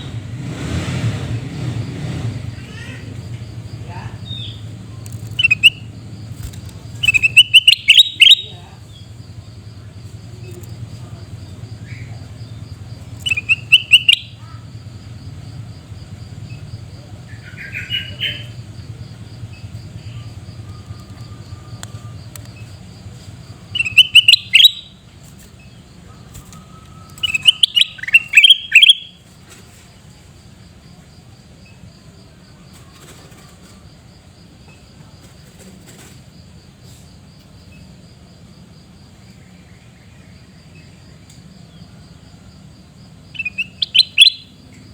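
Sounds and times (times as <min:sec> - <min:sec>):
bird chattering calls: 0:04.2 - 0:09.2, 0:10.3 - 0:14.9, 0:16.6 - 0:18.8, 0:23.4 - 0:25.0, 0:26.2 - 0:29.2, 0:43.3 - 0:44.6.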